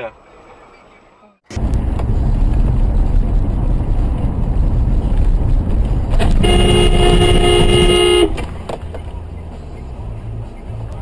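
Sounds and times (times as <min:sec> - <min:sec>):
car road rumble: 0:01.5 - 0:11.0
car horn: 0:06.2 - 0:08.5.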